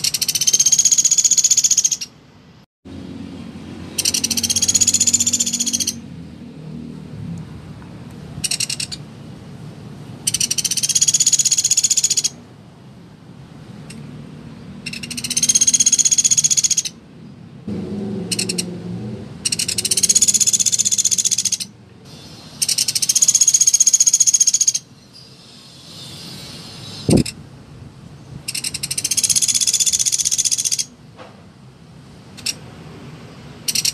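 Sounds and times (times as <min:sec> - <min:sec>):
woodpecker rattling trills: 0:00.0 - 0:02.1, 0:03.9 - 0:06.0, 0:08.4 - 0:09.0, 0:10.2 - 0:12.4, 0:14.8 - 0:17.0, 0:18.3 - 0:18.7, 0:19.4 - 0:21.7, 0:22.6 - 0:24.9, 0:28.5 - 0:30.9, 0:33.7 - 0:33.9.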